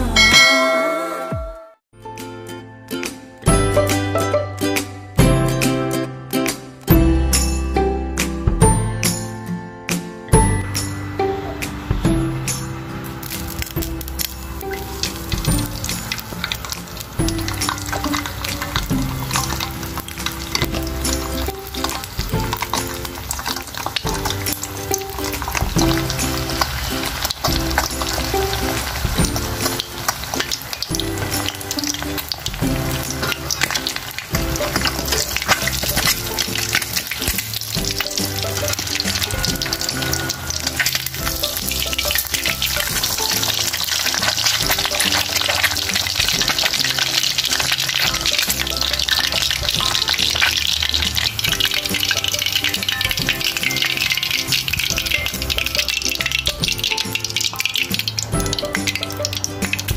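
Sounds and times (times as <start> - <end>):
background music: 0.0 - 59.9
food sizzling in hot oil: 10.4 - 59.9
utensil stirring: 13.2 - 59.9.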